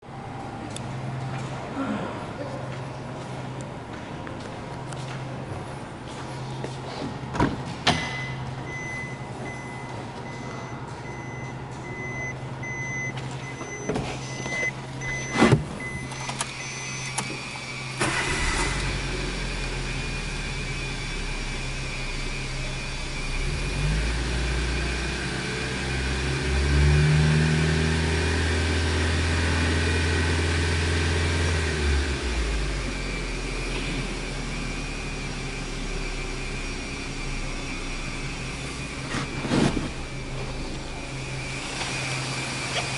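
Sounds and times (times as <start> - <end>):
car engine cranking and idling: 2.7 - 42.9
electronic beep: 8.0 - 17.2.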